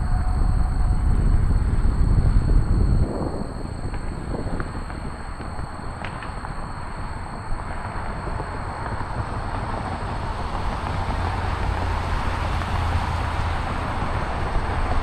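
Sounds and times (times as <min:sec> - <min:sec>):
faint high whine: 0:00.0 - 0:15.0
low rumble: 0:00.0 - 0:15.0.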